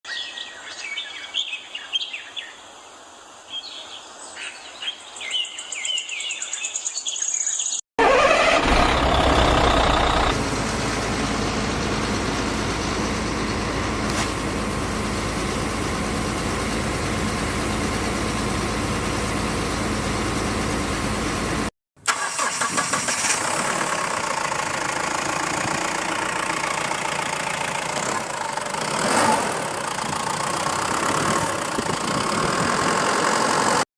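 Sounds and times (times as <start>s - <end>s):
birds chirping: 3.4s - 7.8s
engine running: 8.0s - 33.9s.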